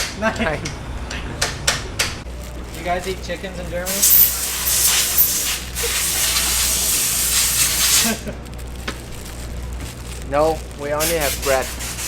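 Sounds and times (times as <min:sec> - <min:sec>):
loud spraying hiss: 0:03.8 - 0:08.2, 0:10.8 - 0:12.0.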